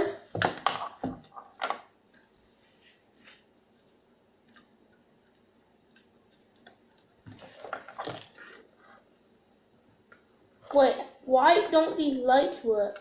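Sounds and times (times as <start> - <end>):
small clicks and taps: 3.8 - 8.1
rustling: 7.2 - 9.3.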